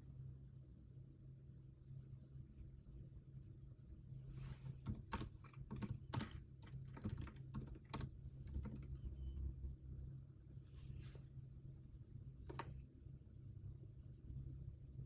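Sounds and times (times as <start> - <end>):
computer keyboard typing: 4.8 - 9.1.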